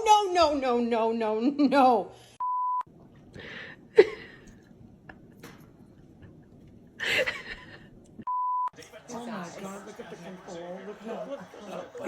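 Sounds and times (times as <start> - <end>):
censor bleep tone: 2.4 - 2.9.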